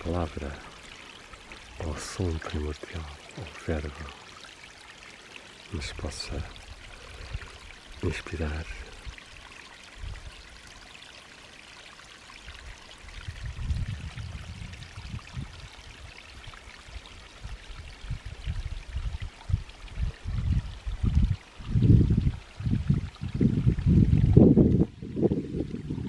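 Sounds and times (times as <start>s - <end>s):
running water trickling: 0.0s - 26.0s
wind buffeting microphone: 13.1s - 16.0s, 17.4s - 26.0s.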